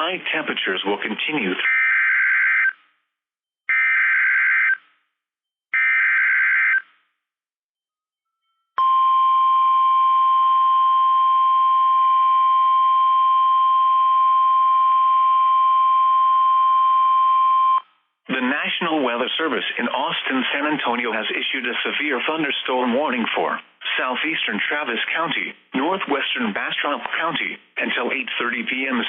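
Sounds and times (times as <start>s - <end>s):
steady warning alarm tone: 5.8s - 7.0s.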